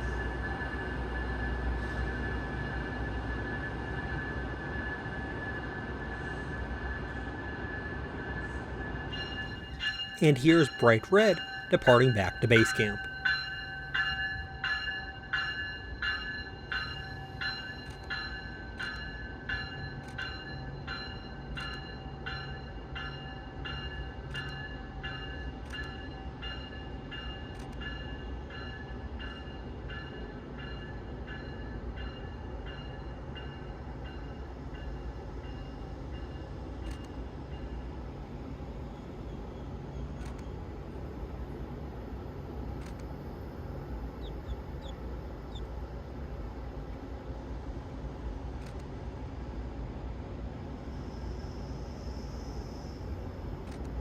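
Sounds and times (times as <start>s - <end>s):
locomotive bell ringing: 9.0s - 25.4s.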